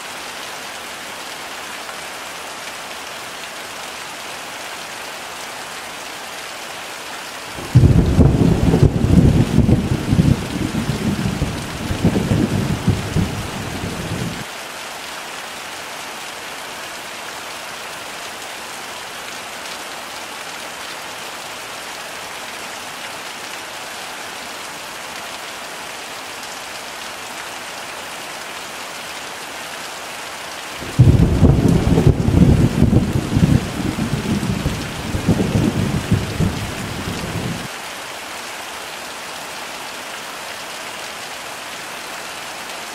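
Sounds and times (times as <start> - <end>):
heavy rain falling: 0.0 - 42.9
thunder rumble: 7.6 - 14.4, 30.8 - 37.7.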